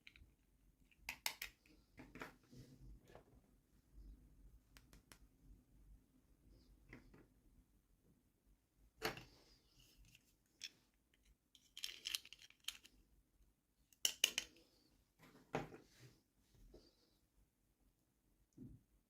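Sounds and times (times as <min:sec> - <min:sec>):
toy packaging clicks and crinkles: 0:11.6 - 0:13.0.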